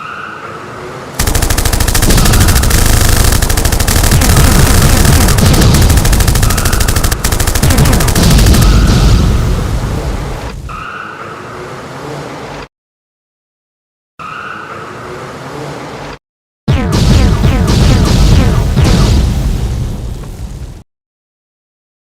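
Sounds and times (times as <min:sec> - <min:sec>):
machine-gun fire: 0:01.2 - 0:10.3, 0:16.7 - 0:19.2
explosion rumble: 0:01.7 - 0:10.5.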